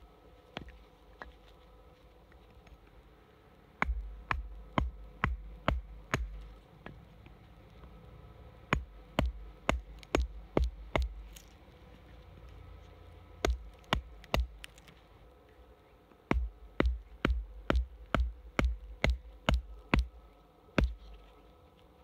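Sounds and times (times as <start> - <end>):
wood being struck: 3.8 - 7.0, 8.7 - 11.2, 13.4 - 14.8, 16.3 - 20.2.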